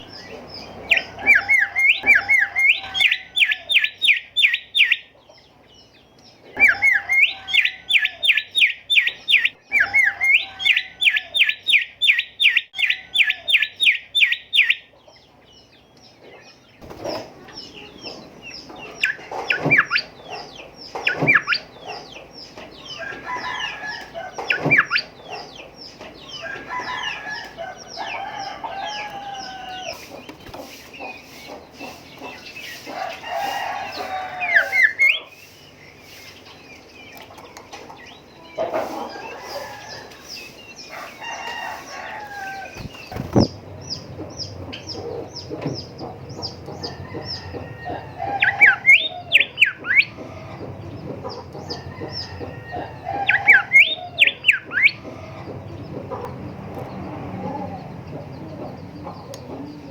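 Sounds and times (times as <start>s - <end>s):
bird whistling song: 0.0s - 5.1s, 6.5s - 14.9s, 18.8s - 20.2s, 20.9s - 21.7s, 33.8s - 36.5s, 46.8s - 50.2s, 51.7s - 55.0s.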